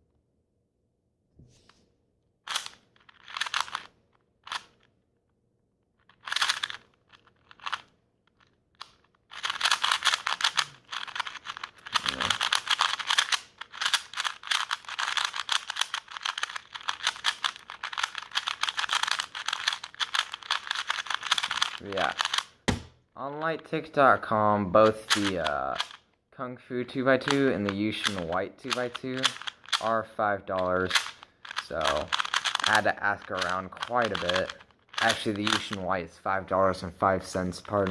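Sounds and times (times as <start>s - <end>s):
speed cube clicking: 2.5s - 3.9s, 4.5s - 4.8s, 6.2s - 22.8s, 24.8s - 26.0s, 27.2s - 30.0s, 30.6s - 35.8s.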